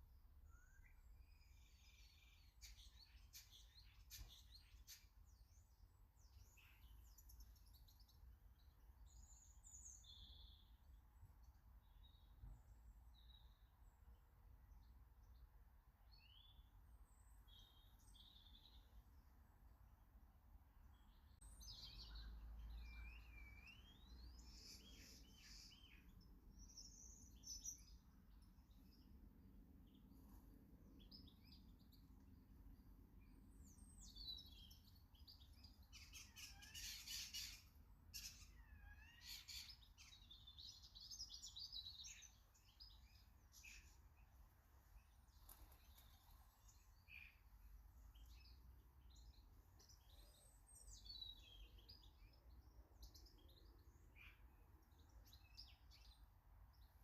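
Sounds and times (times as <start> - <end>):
small birds chirping and whistling: 0.4 - 8.1, 9.1 - 10.8, 21.0 - 29.0, 33.2 - 44.0, 48.1 - 56.9.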